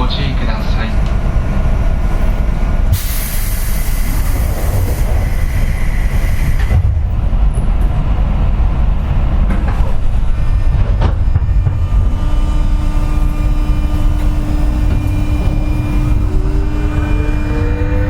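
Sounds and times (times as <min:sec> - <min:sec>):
train car rumble: 0:00.0 - 0:18.0
compressed-air hiss: 0:03.0 - 0:06.7.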